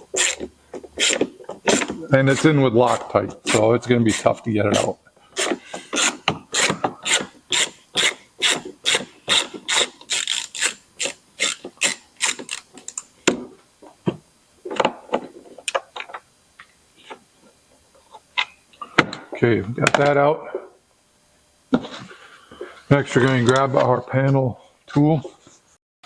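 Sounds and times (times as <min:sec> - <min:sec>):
hand ratchet clicking: 0:05.4 - 0:13.1.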